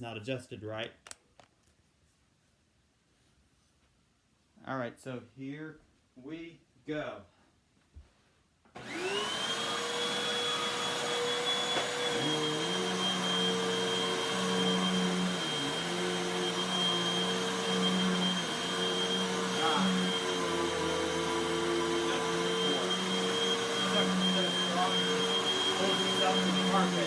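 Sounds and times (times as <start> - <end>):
vacuum cleaner whining: 8.7 - 27.0.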